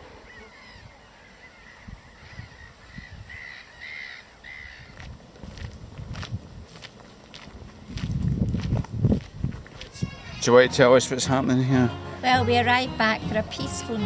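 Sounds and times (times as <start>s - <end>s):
bird harsh calls: 0.0s - 5.0s.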